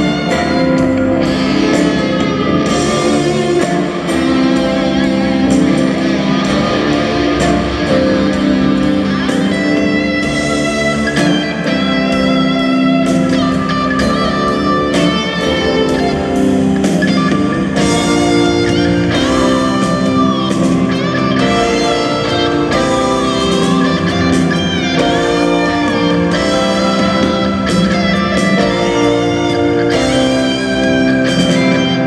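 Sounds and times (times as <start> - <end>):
lead electric guitar with bent notes: 0.0 - 32.0
live rock band: 0.0 - 32.0.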